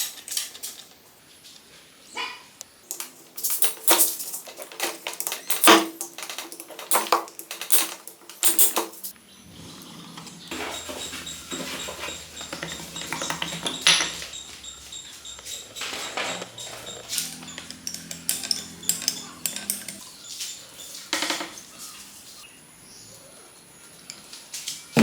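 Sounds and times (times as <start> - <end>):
metal tools clinking and knocking: 0.0 - 1.0, 2.9 - 9.1, 10.5 - 14.9, 15.8 - 20.0.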